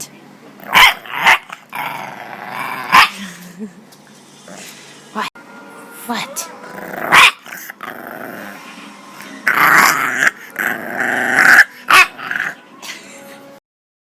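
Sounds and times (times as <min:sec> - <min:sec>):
dog growling: 0:00.6 - 0:03.2, 0:06.7 - 0:08.7, 0:09.4 - 0:12.6
dog bark: 0:07.1 - 0:07.4.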